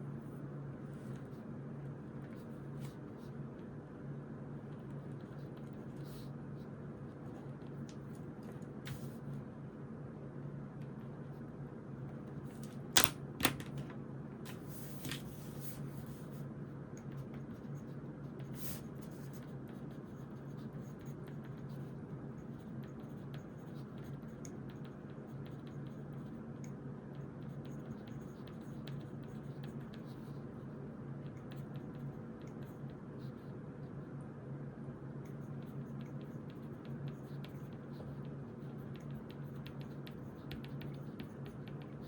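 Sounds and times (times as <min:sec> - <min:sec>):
low room hum: 0:00.0 - 0:42.0
pencil writing on paper: 0:17.0 - 0:33.4, 0:35.3 - 0:42.0.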